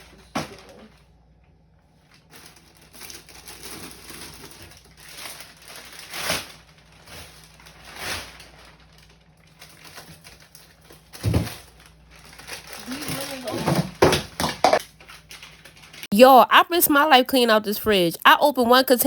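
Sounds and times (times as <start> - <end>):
plastic crinkling and rustling: 1.9 - 16.1
containers knocking: 13.6 - 14.8.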